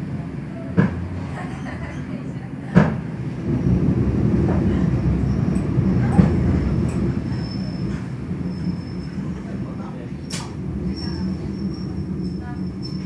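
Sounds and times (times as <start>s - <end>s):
train rumbling and braking: 0.0s - 13.0s
faint wheel squeal: 7.2s - 13.0s.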